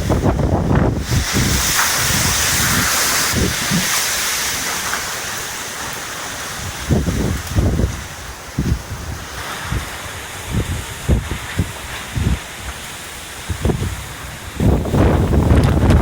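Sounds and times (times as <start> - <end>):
driving rain hiss: 0.0 - 16.0
wind gusts buffeting microphone: 0.0 - 16.0.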